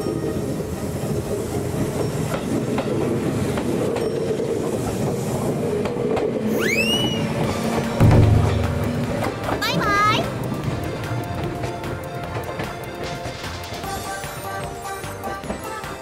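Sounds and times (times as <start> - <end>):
train wheel squeal: 0.0 - 8.0
train rumbling with wheel clatter: 0.0 - 16.0.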